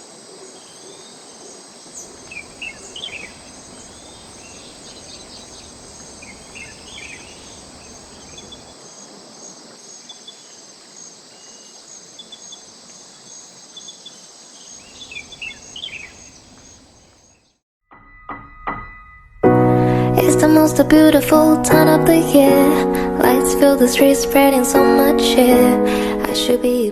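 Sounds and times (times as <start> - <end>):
insects trilling: 0.0 - 17.5
bird chirping: 2.0 - 8.7, 11.3 - 17.6
mountain stream rushing: 2.0 - 9.9.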